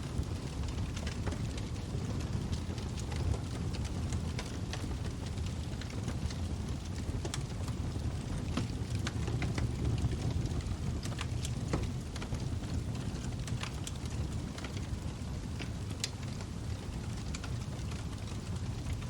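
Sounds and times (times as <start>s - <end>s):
burning wood crackling and popping: 0.0s - 19.0s
log fire rumbling: 0.0s - 19.0s.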